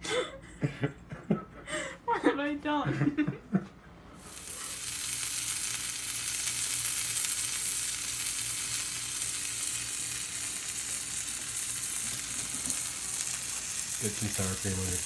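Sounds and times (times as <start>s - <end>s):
food sizzling in a hot pan: 4.2s - 15.0s.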